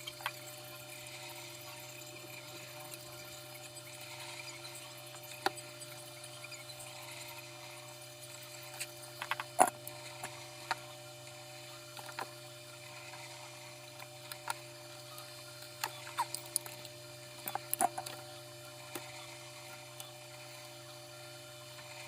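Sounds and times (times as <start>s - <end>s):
small parts clicking and tapping: 0.0s - 7.4s, 8.2s - 11.0s, 11.9s - 12.4s, 13.9s - 20.2s
low electrical hum: 0.0s - 22.0s.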